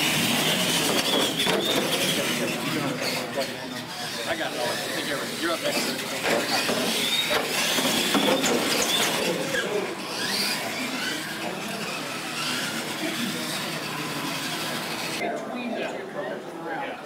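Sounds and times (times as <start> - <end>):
tyres rumbling on concrete: 0.0 - 3.5, 5.5 - 15.2
electric motors whining: 0.0 - 15.2.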